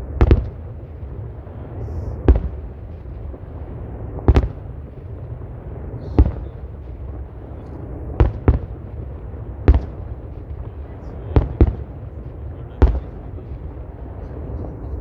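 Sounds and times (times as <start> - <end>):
fireworks bursting: 0.0 - 15.0
low rumble: 0.0 - 15.0.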